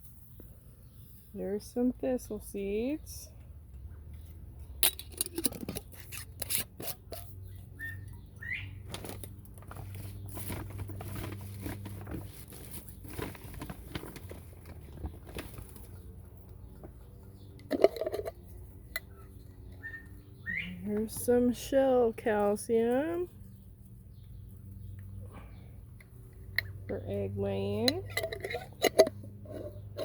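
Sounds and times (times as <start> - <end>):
clicks and scratching: 4.8 - 7.4, 17.6 - 19.8, 27.8 - 30.0
quail chirps: 19.8 - 20.8.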